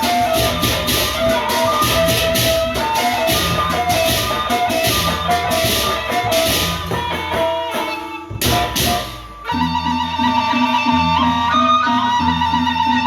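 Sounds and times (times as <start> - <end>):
clashing cymbals: 0.0 - 9.8
drums: 0.0 - 13.0
held woodwind melody: 0.0 - 13.0.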